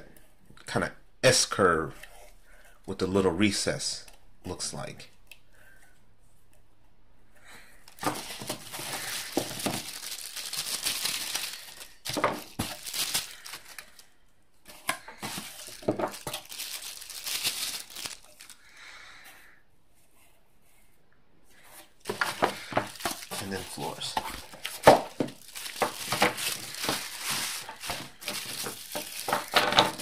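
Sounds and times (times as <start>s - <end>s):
packaging crinkling: 7.8s - 14.1s, 14.8s - 18.7s, 22.0s - 30.0s.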